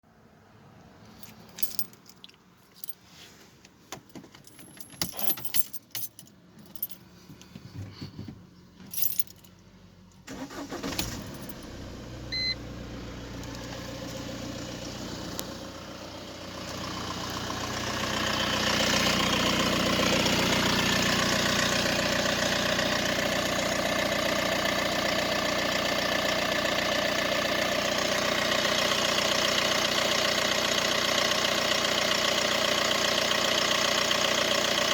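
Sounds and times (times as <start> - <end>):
keys jangling: 1.2 - 3.0, 4.0 - 7.0, 8.8 - 9.6
car engine running with rattle: 4.0 - 9.7, 10.3 - 34.9.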